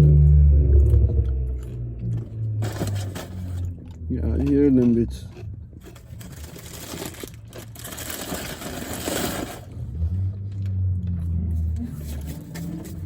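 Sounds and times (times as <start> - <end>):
car exhaust rushing: 0.0 - 4.8.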